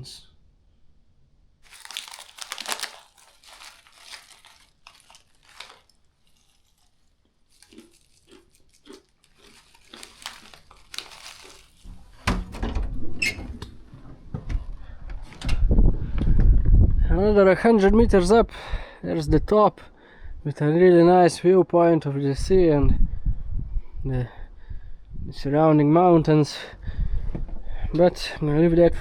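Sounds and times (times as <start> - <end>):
plastic snack packet crinkling: 1.6 - 12.2
low rumbling with knocks: 11.9 - 17.0, 27.1 - 27.7.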